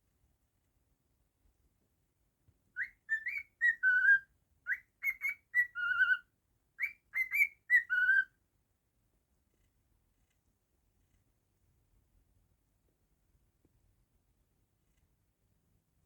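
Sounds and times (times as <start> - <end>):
cockatiel whistling a tune: 2.8 - 8.3.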